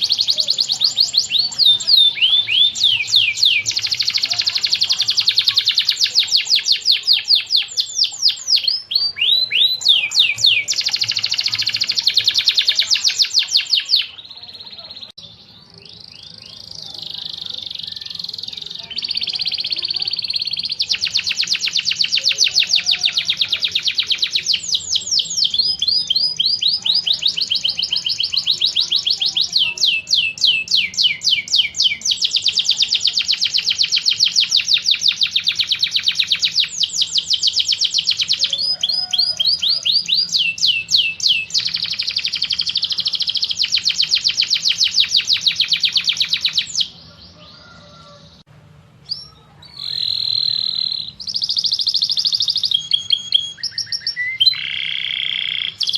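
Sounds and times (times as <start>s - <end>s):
songbird trilling: 0.0s - 48.4s, 49.0s - 55.9s.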